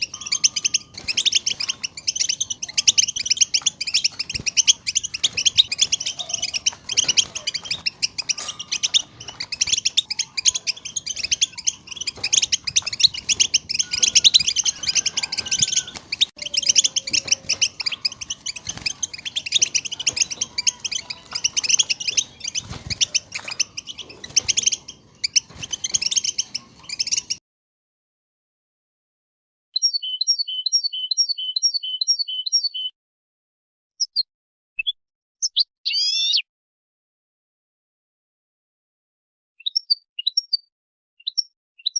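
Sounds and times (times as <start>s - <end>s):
finches twittering: 0.0s - 27.4s.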